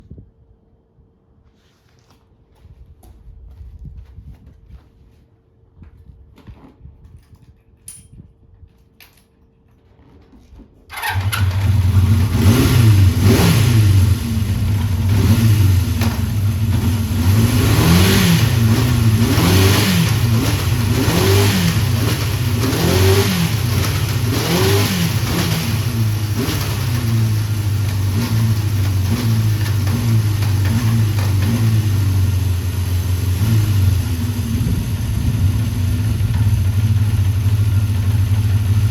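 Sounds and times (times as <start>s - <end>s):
motorcycle engine revving: 10.9s - 38.9s.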